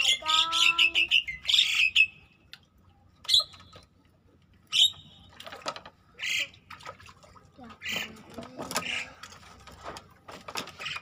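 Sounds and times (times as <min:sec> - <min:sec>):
bird squawking: 0:00.0 - 0:02.2, 0:04.7 - 0:05.2.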